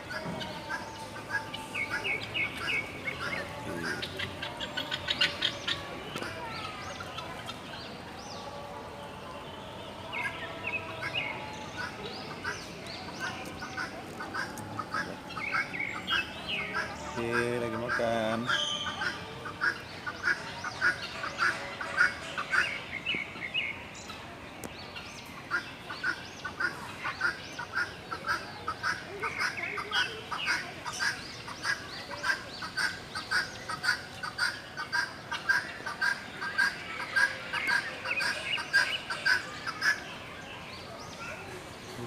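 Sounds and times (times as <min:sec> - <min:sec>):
birds making short calls: 0:00.1 - 0:07.7, 0:10.1 - 0:22.9.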